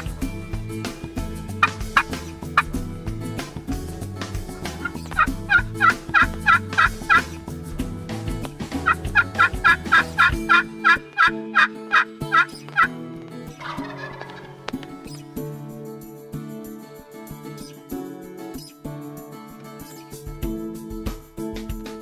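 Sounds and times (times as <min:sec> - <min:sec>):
turkey yelping: 0:04.8 - 0:07.3, 0:08.8 - 0:12.9, 0:13.6 - 0:14.7.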